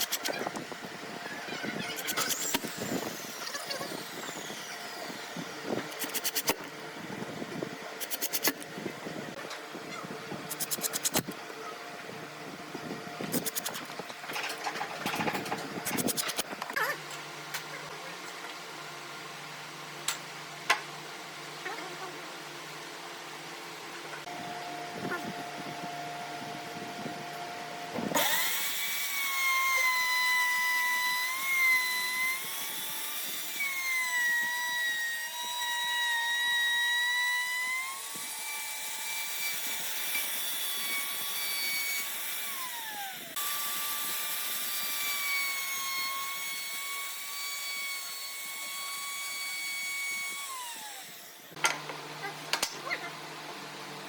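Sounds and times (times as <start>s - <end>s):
power tool motor whining: 0.0s - 9.4s, 10.5s - 11.4s, 12.8s - 16.8s, 27.9s - 52.3s.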